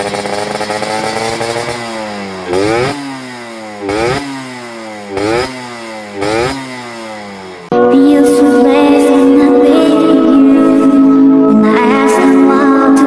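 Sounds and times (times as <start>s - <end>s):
motorcycle engine revving: 0.0s - 7.8s.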